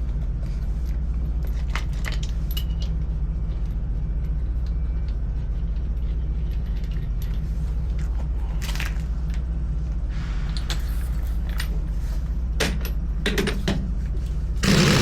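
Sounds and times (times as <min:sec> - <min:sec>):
low mechanical drone: 0:14.1 - 0:15.0.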